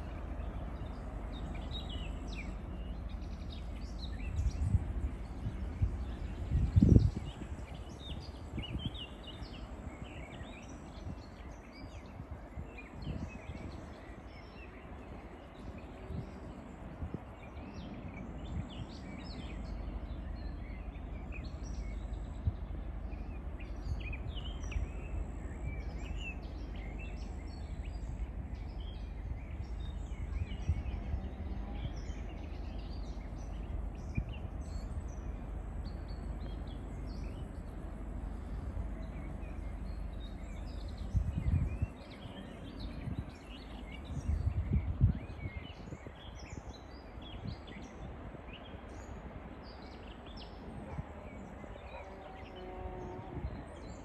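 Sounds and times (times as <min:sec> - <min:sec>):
steady low rumble: 0:00.0 - 0:51.9
small birds chirping and singing: 0:17.4 - 0:37.8, 0:38.4 - 0:54.0.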